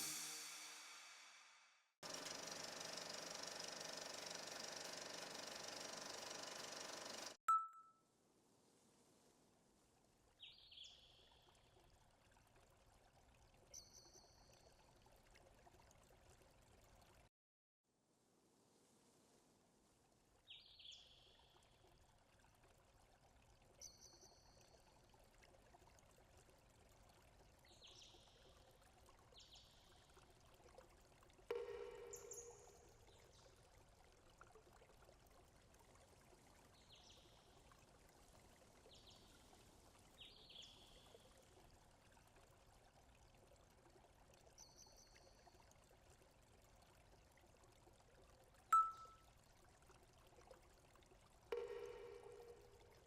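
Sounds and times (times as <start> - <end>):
high bird chirps: 48.8 - 49.2.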